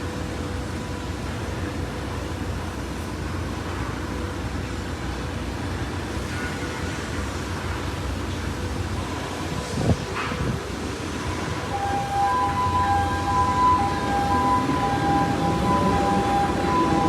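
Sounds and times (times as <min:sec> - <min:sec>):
ship machinery rumbling: 0:10.6 - 0:17.0.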